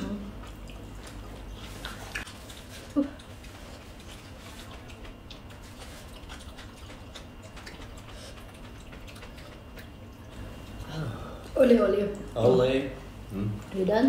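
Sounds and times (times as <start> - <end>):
chewing clicks and smacks: 0.4 - 10.8.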